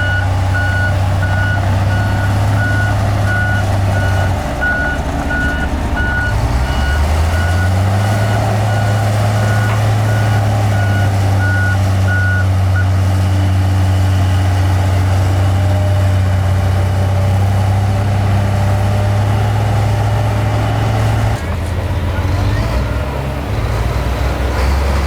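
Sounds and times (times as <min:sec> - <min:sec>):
back-up alarm beeping: 0:00.0 - 0:12.4
heavy diesel machine running: 0:00.0 - 0:25.0.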